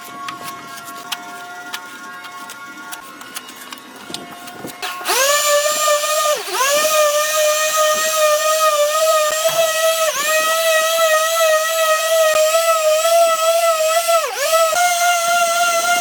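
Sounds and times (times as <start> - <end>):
power tool motor whining: 4.1 - 16.0.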